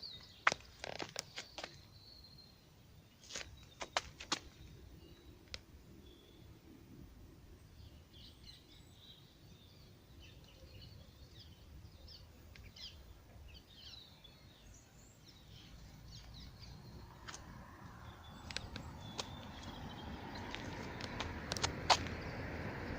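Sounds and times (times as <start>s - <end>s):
small birds chirping: 0.0s - 6.8s, 7.4s - 22.9s
low background rumble: 15.0s - 22.9s.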